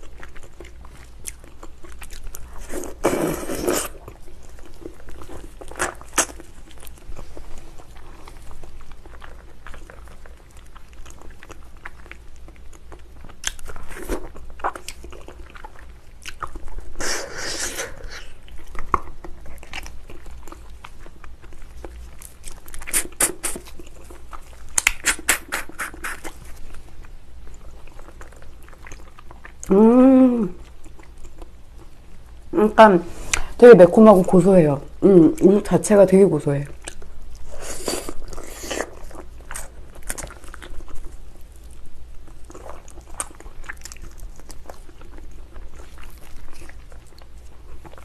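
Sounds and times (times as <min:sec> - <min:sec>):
chewing mouth smacks and clicks: 0:18.7 - 0:26.5.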